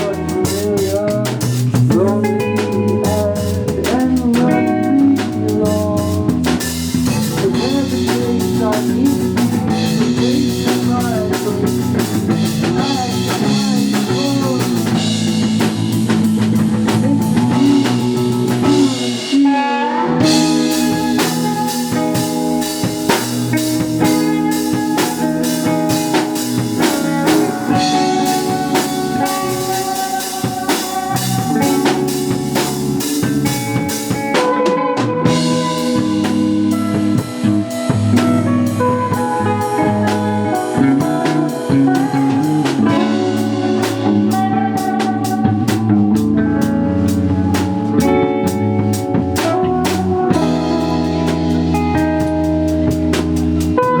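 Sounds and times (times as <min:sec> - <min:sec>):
drum kit: 0:00.0 - 0:54.0
live rock band playing: 0:00.0 - 0:54.0.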